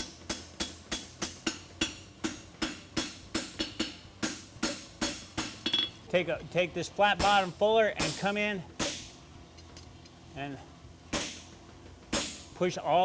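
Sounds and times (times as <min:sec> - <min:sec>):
hammer striking horseshoe on anvil: 0:00.3 - 0:06.0, 0:07.2 - 0:09.9, 0:11.1 - 0:11.5, 0:12.1 - 0:12.5.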